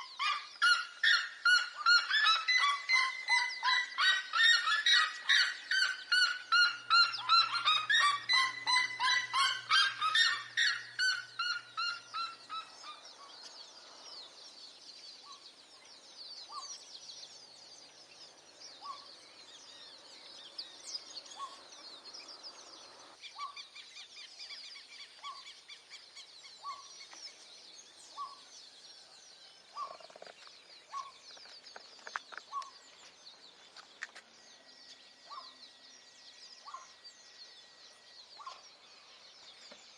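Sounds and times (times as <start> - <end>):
high chirping: 0.0 - 13.5
birds yelping calls: 0.0 - 39.9.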